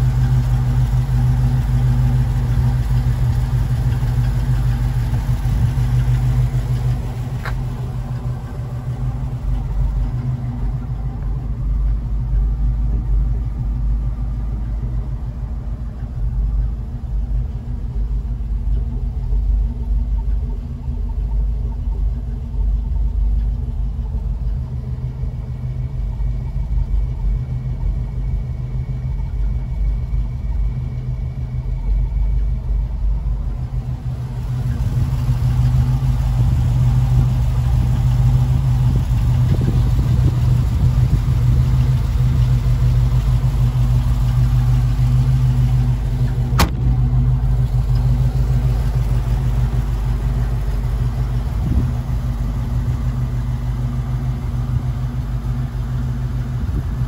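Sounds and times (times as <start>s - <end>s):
car engine idling: 0.0s - 57.0s
sharp click: 46.6s - 46.8s.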